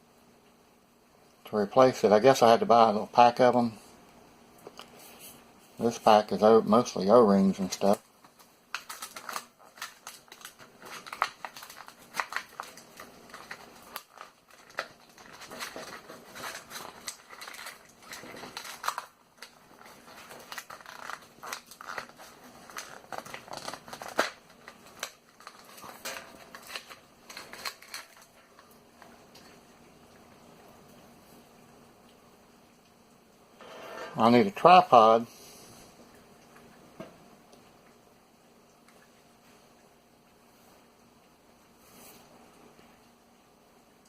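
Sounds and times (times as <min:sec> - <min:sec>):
plastic packaging crinkling: 0:07.0 - 0:29.6.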